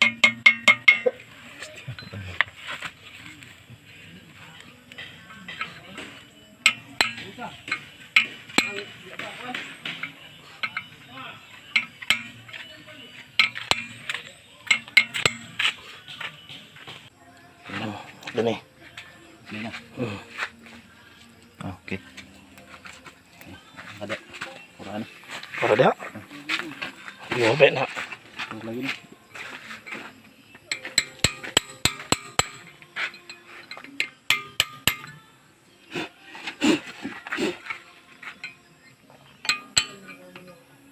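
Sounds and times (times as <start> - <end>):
hammer ringing on steel: 0.0 - 1.2, 13.4 - 15.6, 30.7 - 32.7, 34.3 - 35.2
metal tools clinking: 0.0 - 3.2, 4.6 - 17.0, 29.8 - 35.3, 37.5 - 38.7, 39.3 - 40.7.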